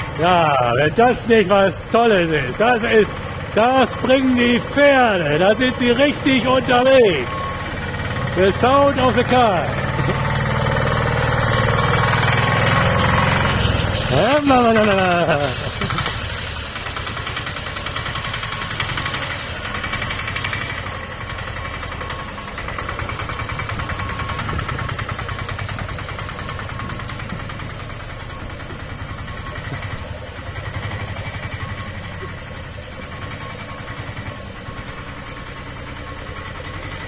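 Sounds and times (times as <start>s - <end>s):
small engine puttering: 0.0s - 37.0s.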